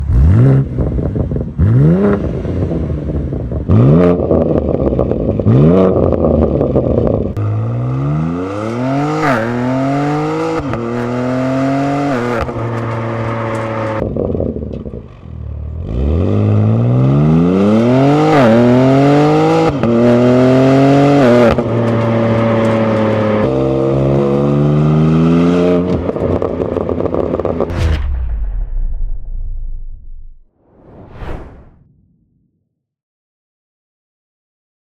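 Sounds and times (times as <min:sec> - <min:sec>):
car exhaust revving: 0:00.0 - 0:14.0.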